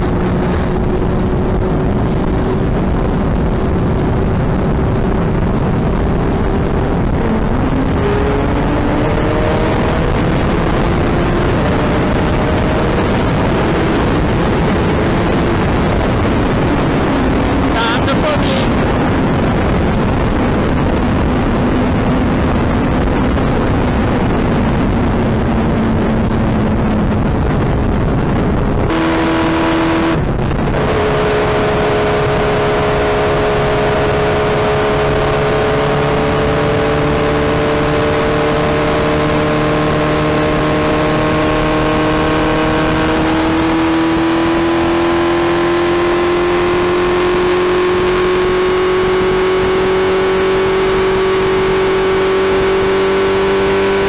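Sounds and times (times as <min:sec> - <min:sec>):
motorcycle engine and exhaust: 0:00.0 - 0:54.0
steady rushing noise: 0:16.0 - 0:20.1.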